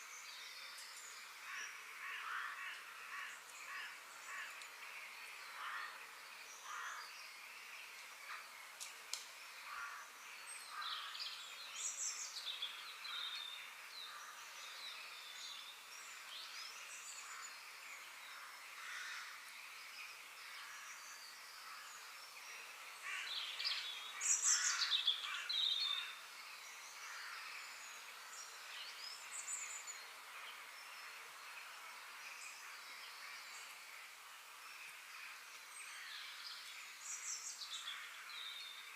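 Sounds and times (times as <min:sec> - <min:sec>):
faint outdoor background hiss: 0:00.0 - 0:38.9
birds chirping and calling: 0:23.0 - 0:26.2.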